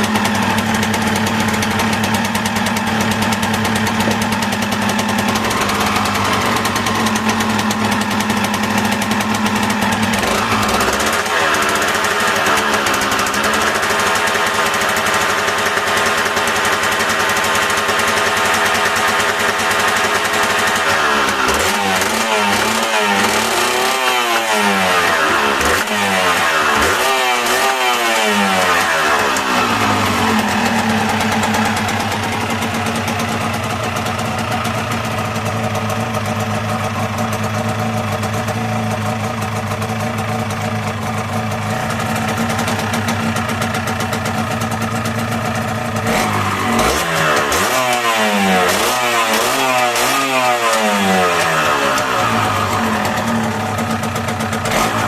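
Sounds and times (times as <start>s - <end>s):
two-stroke engine revving and idling: 0.0s - 55.0s.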